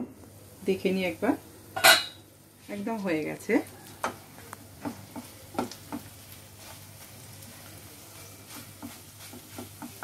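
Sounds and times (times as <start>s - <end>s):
egg sizzling in oil: 0.4s - 10.0s
spatula scraping pan: 4.8s - 10.0s.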